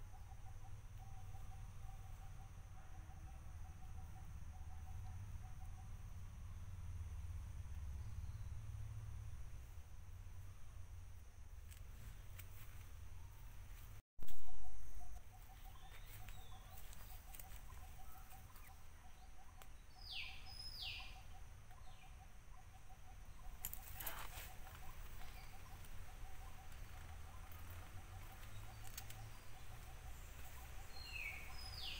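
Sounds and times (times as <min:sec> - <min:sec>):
rustle: 0:04.9 - 0:31.9
high falling bird calls: 0:14.4 - 0:31.9.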